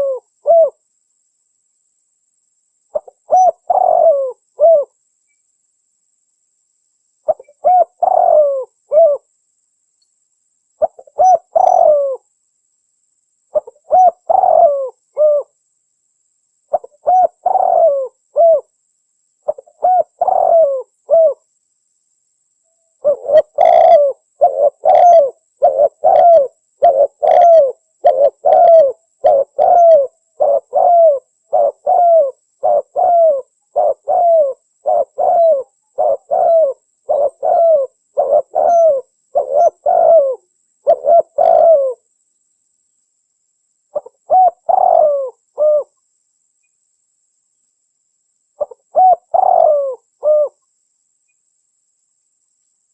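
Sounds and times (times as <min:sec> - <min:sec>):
dove cooing: 0:00.0 - 0:00.8, 0:02.9 - 0:05.0, 0:07.3 - 0:09.3, 0:10.8 - 0:12.2, 0:13.5 - 0:15.6, 0:16.7 - 0:18.7, 0:19.4 - 0:21.4, 0:23.0 - 0:42.0, 0:43.9 - 0:46.0, 0:48.6 - 0:50.6.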